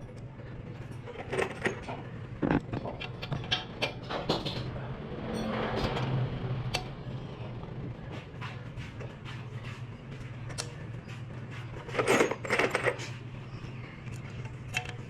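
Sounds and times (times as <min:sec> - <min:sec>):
steady low hum: 0:00.0 - 0:15.0
metal parts and tools clinking: 0:00.8 - 0:06.2, 0:11.8 - 0:15.0.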